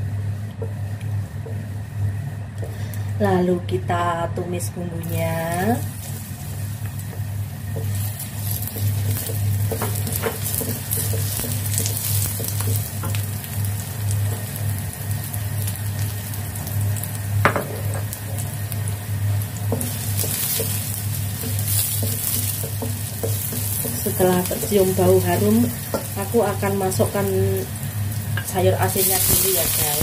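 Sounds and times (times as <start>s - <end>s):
low steady hum: 0.0s - 30.0s
vegetables sizzling in hot oil: 5.0s - 30.0s
spatula scraping and tapping wok: 6.0s - 14.8s, 17.4s - 18.6s, 19.6s - 27.3s.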